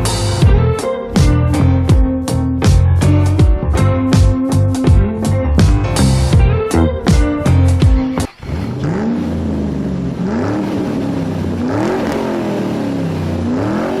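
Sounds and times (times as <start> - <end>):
guitar music: 0.0 - 13.9
motorcycle engine revving: 7.1 - 14.0.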